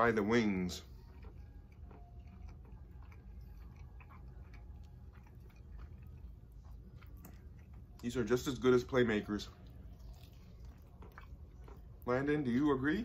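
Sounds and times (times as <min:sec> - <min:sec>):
low steady hum: 0:00.0 - 0:13.0
quiet chewing: 0:00.0 - 0:13.0.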